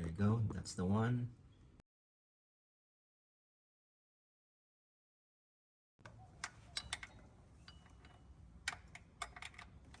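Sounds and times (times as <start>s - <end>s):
hand tools clinking on metal: 6.4s - 10.0s.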